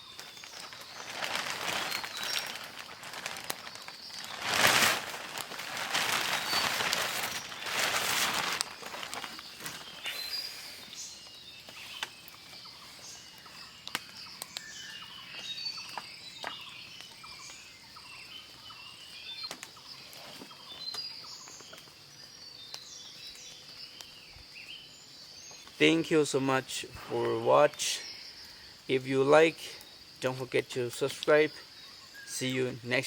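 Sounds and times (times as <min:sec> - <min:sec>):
birds chirping: 0:00.0 - 0:33.0
high insect buzz: 0:00.1 - 0:12.1.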